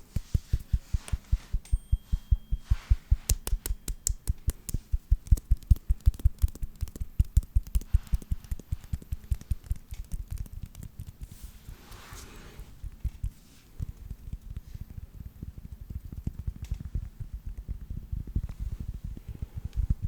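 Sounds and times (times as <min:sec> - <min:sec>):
sharp hand clicks: 0:03.2 - 0:11.2.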